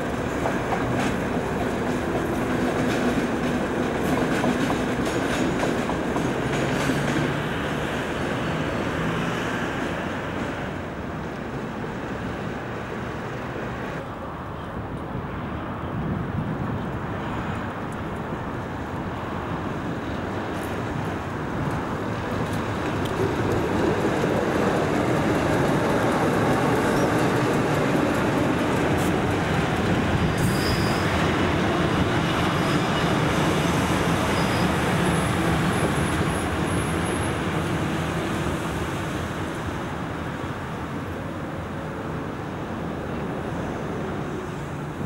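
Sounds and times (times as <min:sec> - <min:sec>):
diesel locomotive engine: 0:00.0 - 0:45.0
faint high wheel squeals: 0:30.3 - 0:31.3, 0:34.1 - 0:37.3.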